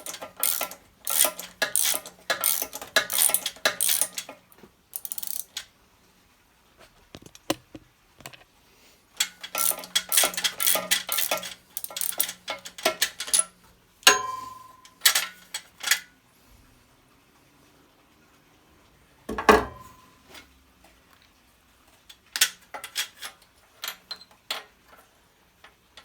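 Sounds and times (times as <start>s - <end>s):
ratchet wrench clicking: 0.0s - 5.7s, 9.2s - 13.5s
sharp metallic clink: 14.1s - 15.2s.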